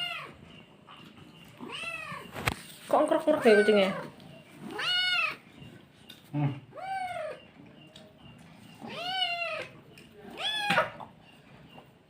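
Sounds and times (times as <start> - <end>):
cat meowing: 1.6 - 2.3, 3.4 - 5.4, 8.8 - 11.0.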